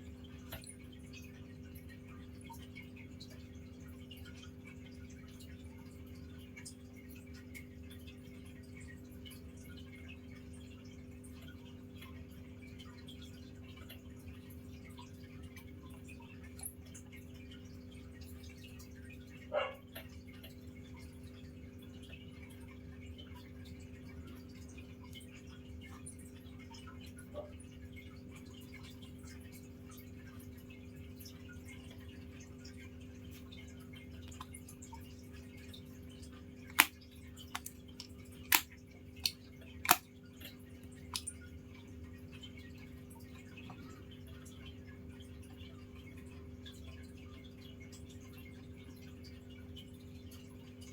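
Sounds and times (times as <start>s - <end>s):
low hum of room noise: 0.0s - 50.9s
sharp clicks: 36.7s - 36.9s, 37.6s - 40.0s.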